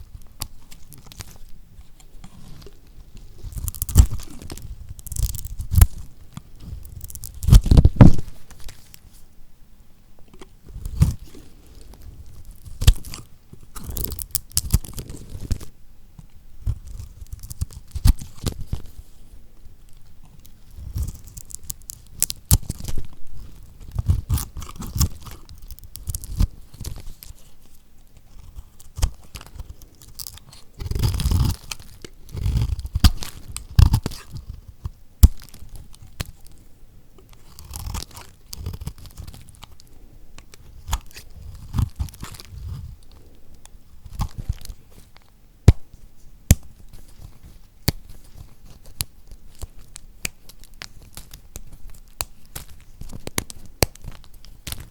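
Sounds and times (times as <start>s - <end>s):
knife crunching through hard soap: 3.4s - 6.1s, 6.8s - 8.3s, 28.3s - 36.5s, 37.3s - 43.3s.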